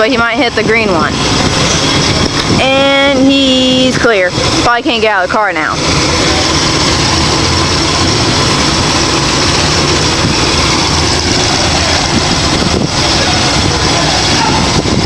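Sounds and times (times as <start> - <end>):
car engines rumbling: 0.0 - 15.0.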